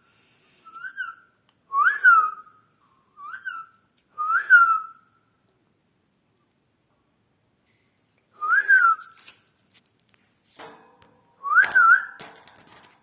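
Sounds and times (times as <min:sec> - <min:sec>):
parrot whistling a tune: 0:00.6 - 0:02.6, 0:03.2 - 0:05.0, 0:08.4 - 0:09.1, 0:11.4 - 0:12.2.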